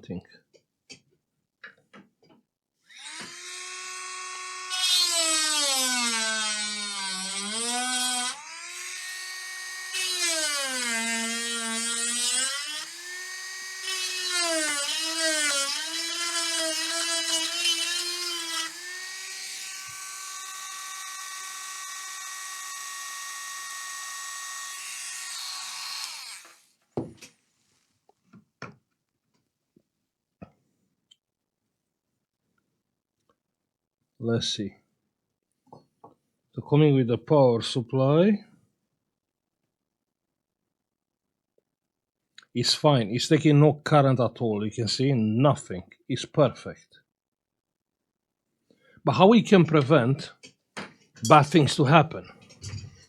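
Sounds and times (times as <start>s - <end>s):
high-speed electric rotary tool: 2.9s - 26.6s.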